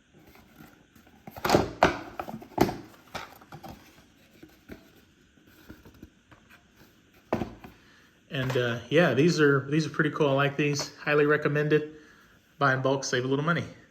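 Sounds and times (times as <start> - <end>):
packaging knocks and rustles: 0.1 - 7.8.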